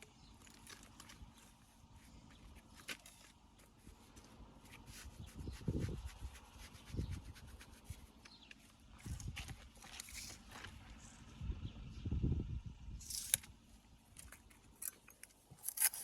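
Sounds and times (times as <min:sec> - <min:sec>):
stones clicking and scraping: 0:00.2 - 0:04.9, 0:14.2 - 0:16.0.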